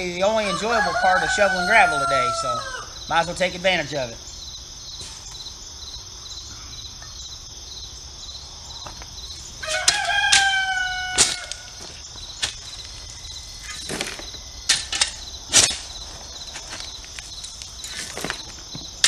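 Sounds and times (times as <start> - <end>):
rooster crowing: 0.0 - 3.3, 9.5 - 11.9
crickets chirping: 0.0 - 19.0
sharp scrapes and knocks: 11.2 - 19.0.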